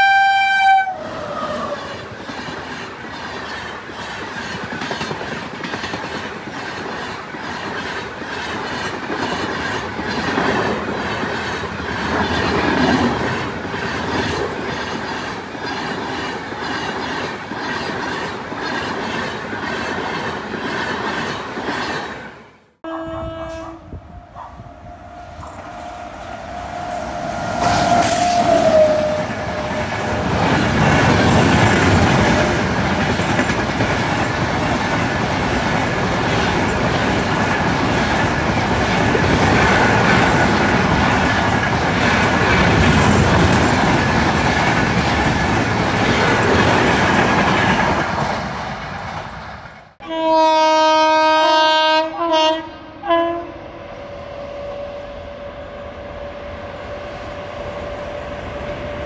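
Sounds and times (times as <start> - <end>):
electric locomotive horn blasts: 0.0 - 1.6, 22.8 - 29.9, 50.0 - 58.3
train horn: 0.0 - 1.9, 22.8 - 30.1, 50.0 - 58.6.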